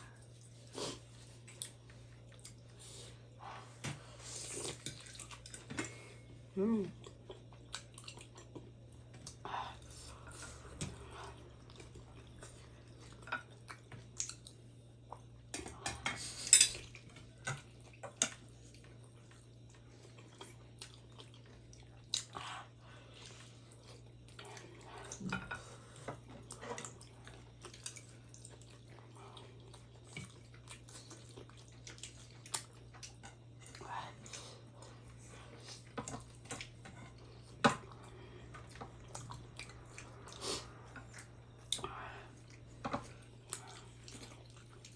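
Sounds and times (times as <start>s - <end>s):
chewing with wet mouth clicks: 1.4s - 2.7s, 7.0s - 9.4s, 10.7s - 15.4s, 16.8s - 22.5s, 26.4s - 33.8s, 35.7s - 44.9s.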